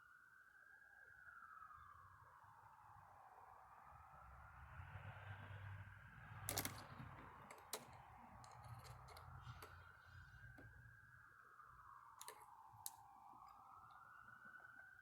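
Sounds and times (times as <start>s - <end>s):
faint wavering whine: 0.0s - 4.9s, 6.5s - 15.0s
small metal parts clicking: 6.5s - 10.8s, 12.2s - 13.6s.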